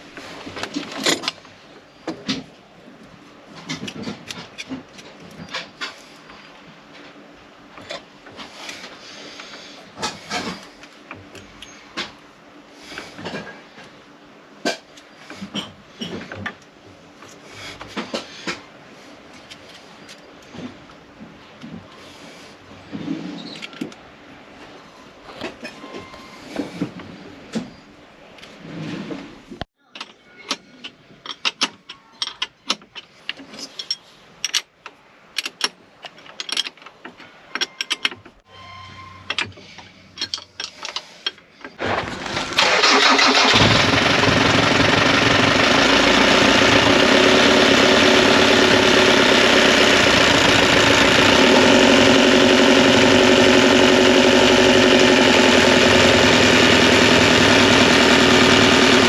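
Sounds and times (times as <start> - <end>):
boat engine running: 43.0 - 59.0.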